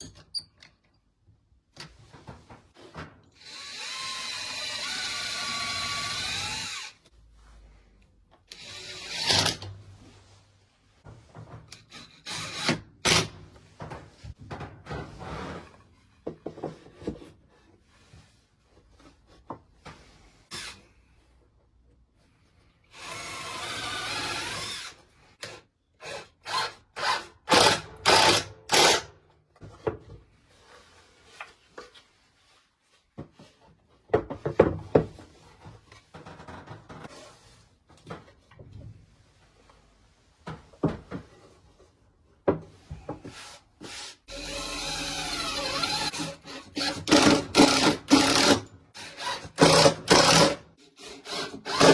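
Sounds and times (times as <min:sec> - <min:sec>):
power drill whining: 0:03.4 - 0:07.0, 0:08.5 - 0:09.6, 0:22.9 - 0:25.0, 0:44.3 - 0:51.9
wood and tools clattering: 0:40.4 - 0:51.9.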